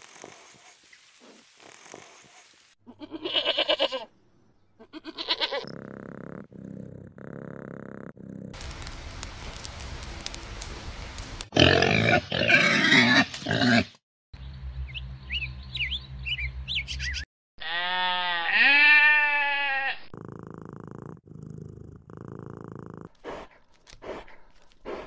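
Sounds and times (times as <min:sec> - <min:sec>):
cat purring: 0:20.2 - 0:23.2.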